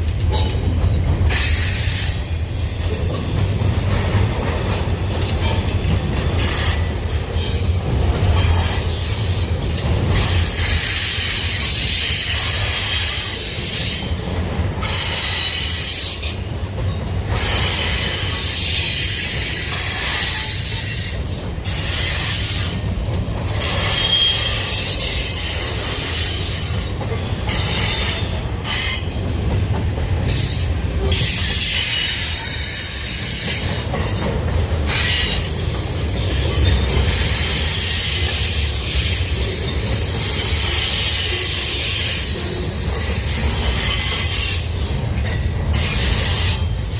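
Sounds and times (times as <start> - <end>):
train wheels rumbling on rail: 0.0 - 46.9
high-pitched wheel squeal: 23.7 - 25.9.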